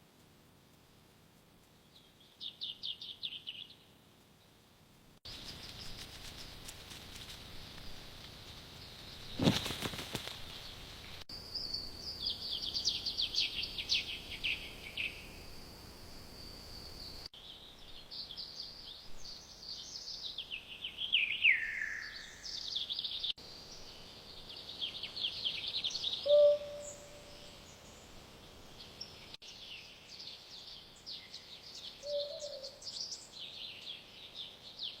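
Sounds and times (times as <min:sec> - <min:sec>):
songbirds singing and chirping: 0:01.8 - 0:04.5, 0:10.5 - 0:15.6, 0:16.6 - 0:35.0.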